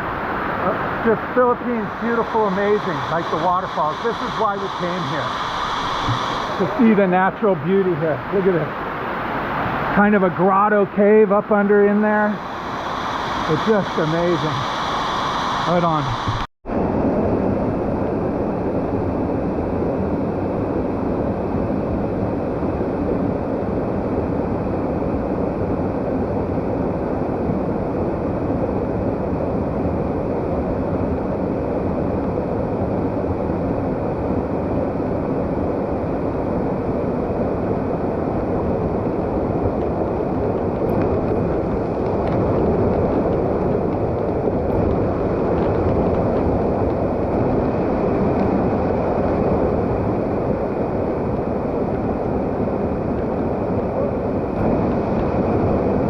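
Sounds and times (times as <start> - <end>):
waterfall rushing: 0.0 - 10.5, 12.4 - 16.5.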